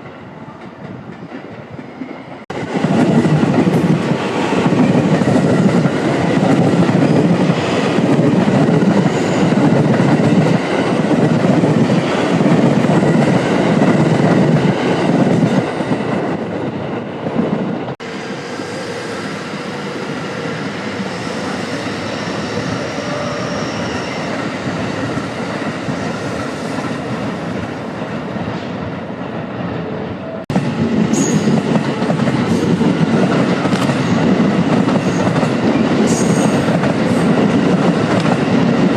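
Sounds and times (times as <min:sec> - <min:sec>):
train wheels clattering on rails: 0:30.5 - 0:38.9.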